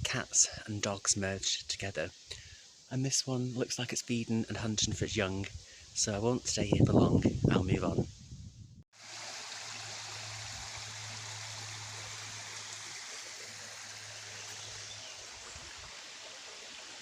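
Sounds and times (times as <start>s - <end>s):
flowing water rushing: 9.0s - 17.0s.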